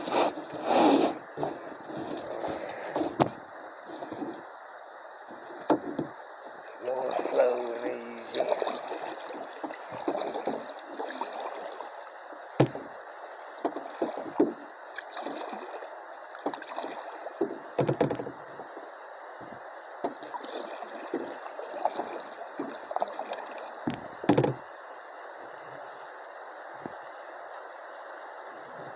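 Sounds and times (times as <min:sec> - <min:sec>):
paddle splashes: 0:00.0 - 0:04.6, 0:05.2 - 0:18.9, 0:19.5 - 0:24.6
rushing river water: 0:06.2 - 0:13.5
sharp knocks: 0:12.6 - 0:12.9.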